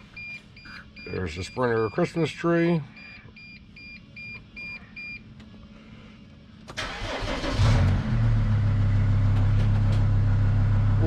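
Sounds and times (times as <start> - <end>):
van engine starting and idling: 6.6 - 11.0.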